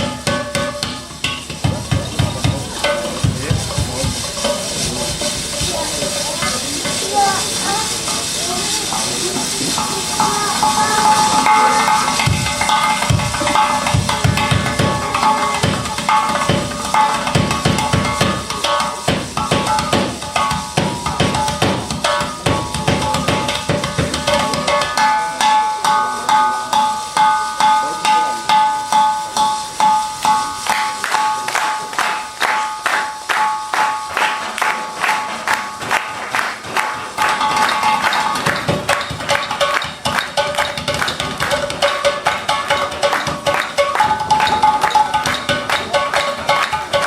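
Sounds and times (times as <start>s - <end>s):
heavy drum beats: 0.0s - 47.0s
struck percussion beats: 0.0s - 47.0s
steady ringing tones: 9.8s - 19.0s.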